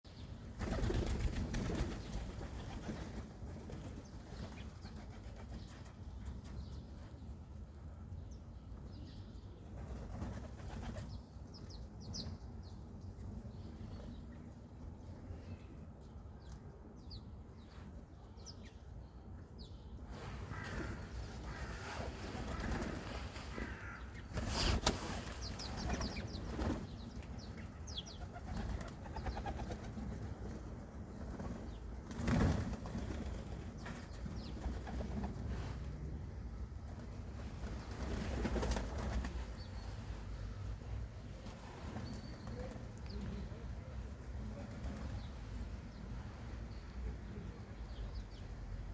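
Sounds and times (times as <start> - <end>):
low city rumble: 0.1 - 48.9
pigeons flapping wings: 0.6 - 5.8, 9.8 - 11.2, 21.5 - 23.1, 23.7 - 27.1, 28.1 - 35.5, 37.0 - 39.6
small birds chirping: 8.2 - 14.5, 15.4 - 35.8, 37.4 - 48.6
rustle: 20.0 - 30.1, 36.9 - 43.5.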